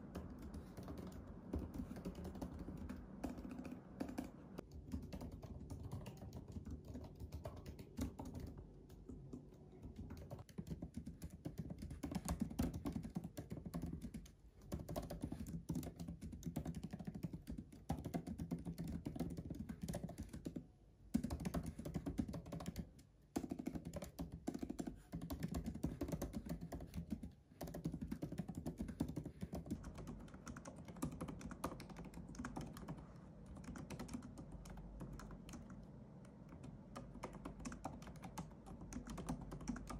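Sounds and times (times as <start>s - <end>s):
fast typing on laptop keyboard: 0.0s - 39.9s.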